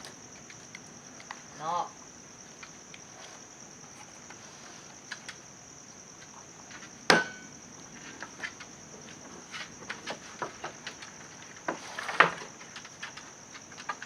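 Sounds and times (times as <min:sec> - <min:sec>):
sharp knock: 0:07.1 - 0:07.5.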